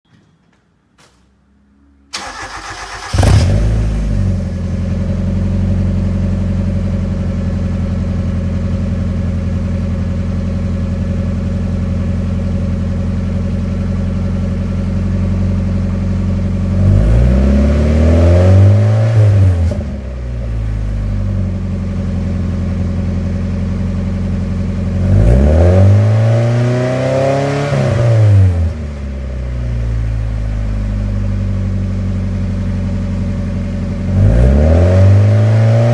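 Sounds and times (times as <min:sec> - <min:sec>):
car engine starting and idling: 0:02.0 - 0:35.9
car engine revving: 0:02.1 - 0:06.4, 0:16.4 - 0:20.0, 0:24.9 - 0:29.1, 0:31.4 - 0:35.9.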